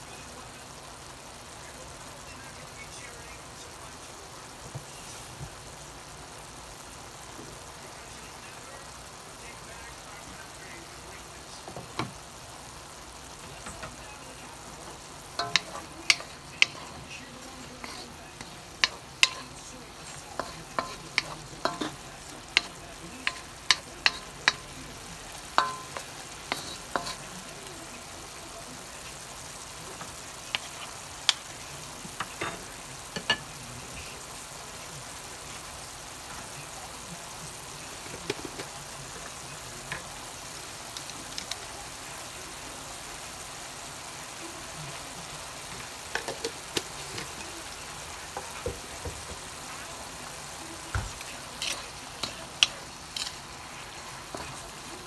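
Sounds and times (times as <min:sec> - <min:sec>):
beef sizzling in a wok: 0:00.0 - 0:55.0
wooden spatula scraping a pan: 0:15.4 - 0:24.6
knocks on a pan: 0:48.4 - 0:49.5.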